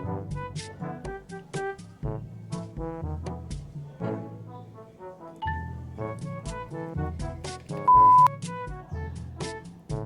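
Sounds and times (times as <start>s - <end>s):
music with horn melody and beat: 0.0s - 10.0s
loud pure beep: 7.9s - 8.3s.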